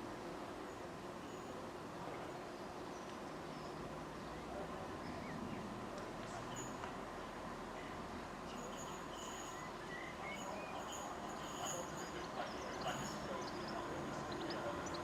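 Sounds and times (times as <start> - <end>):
low background noise: 0.0 - 15.0
small birds chirping: 2.1 - 5.8, 8.6 - 15.0.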